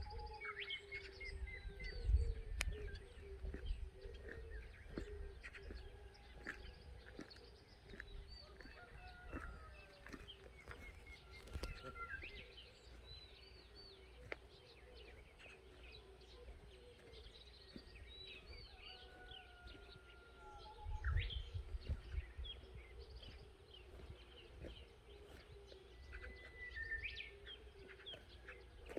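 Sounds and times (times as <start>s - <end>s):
wind buffeting microphone: 0.0s - 0.2s, 1.1s - 13.2s, 17.2s - 27.2s
small birds chirping: 0.0s - 28.9s.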